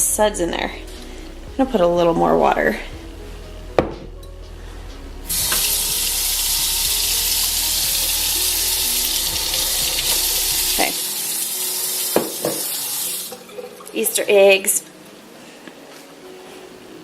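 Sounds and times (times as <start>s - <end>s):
tap running water: 5.3s - 14.0s.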